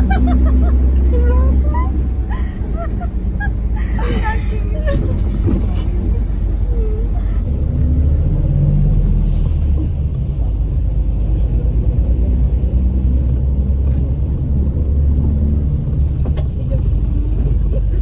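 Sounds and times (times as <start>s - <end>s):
moving vehicle rumble: 0.0s - 18.0s.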